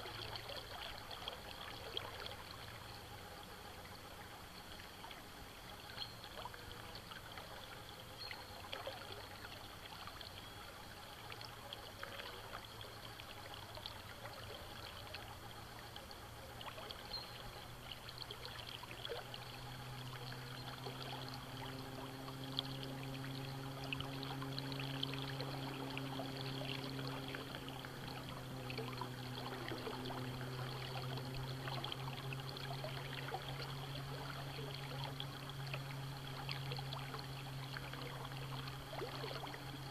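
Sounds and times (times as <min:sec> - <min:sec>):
river water trickling: 0:00.0 - 0:39.9
steady low hum: 0:00.0 - 0:39.9
small splashes: 0:17.8 - 0:39.9.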